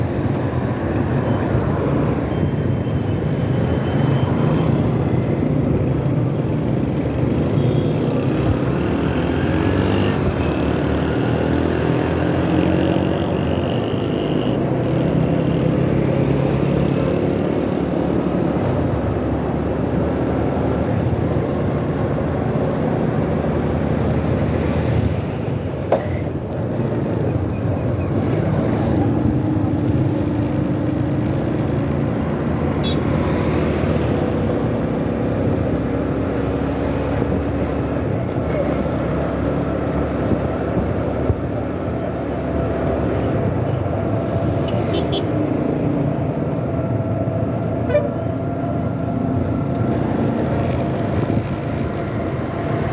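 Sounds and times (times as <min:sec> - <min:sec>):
road and traffic noise: 0:00.0 - 0:52.9
motorcycle engine revving: 0:08.2 - 0:18.6, 0:26.8 - 0:36.7, 0:49.8 - 0:52.9.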